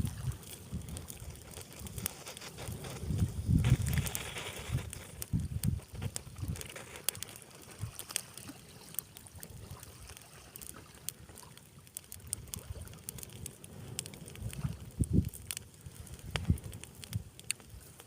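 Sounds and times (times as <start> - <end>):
wind buffeting microphone: 0.0 - 6.7, 12.3 - 17.8
campfire crackling and popping: 0.0 - 18.0.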